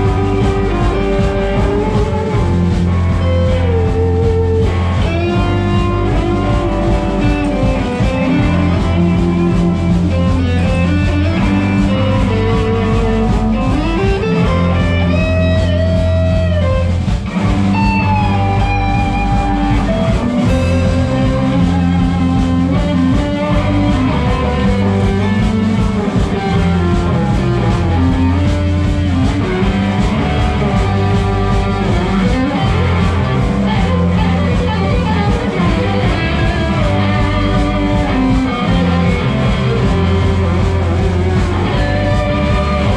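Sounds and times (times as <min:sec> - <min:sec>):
lead guitar bending notes: 0:00.0 - 0:42.9
live rock band playing: 0:00.0 - 0:42.9.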